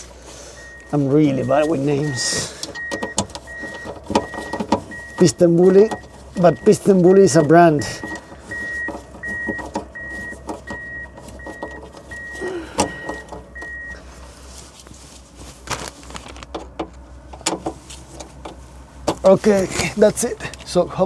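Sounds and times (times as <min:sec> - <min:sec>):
snow groomer engine rumble: 0:00.0 - 0:21.0
high electronic warning beep: 0:00.6 - 0:14.0
clicks and knocks: 0:02.6 - 0:06.8.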